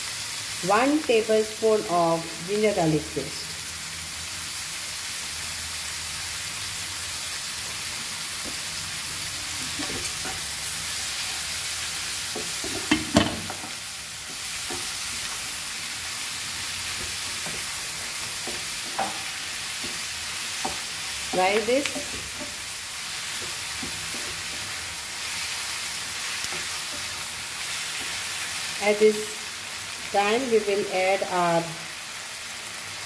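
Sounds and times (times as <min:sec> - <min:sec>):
vegetables sizzling in hot oil: 0:00.0 - 0:33.0
spatula scraping and knocking pan: 0:09.3 - 0:10.6, 0:12.2 - 0:15.5, 0:16.9 - 0:24.9.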